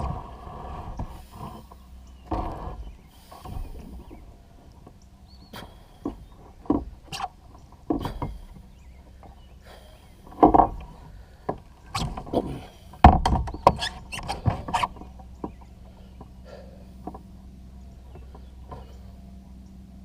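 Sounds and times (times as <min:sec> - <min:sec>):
knocks and scrapes on kayak hull: 0:00.0 - 0:09.5, 0:10.3 - 0:16.4.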